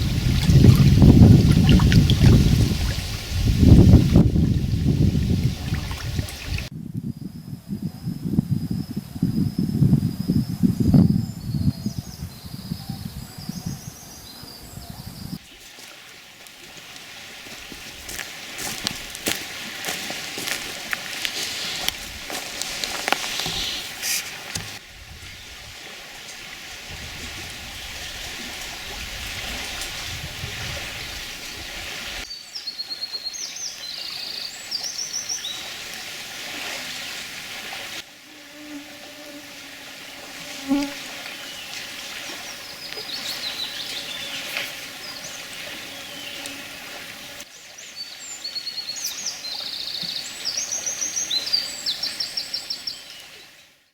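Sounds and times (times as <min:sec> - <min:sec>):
songbirds singing trills: 0:00.0 - 0:15.4, 0:23.3 - 0:23.9, 0:42.4 - 0:46.6, 0:47.2 - 0:53.4
steady outdoor hiss: 0:00.0 - 0:53.9.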